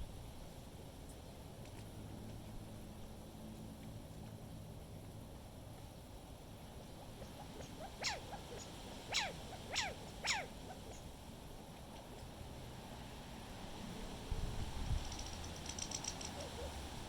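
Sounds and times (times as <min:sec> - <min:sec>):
low rumble of wind: 0:00.0 - 0:17.0
high squeaky animal calls: 0:07.5 - 0:11.0.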